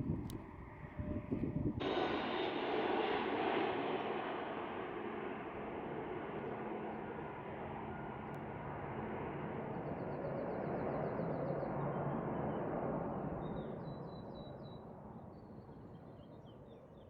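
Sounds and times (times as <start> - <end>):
jet engine rumble: 0.0 - 11.1.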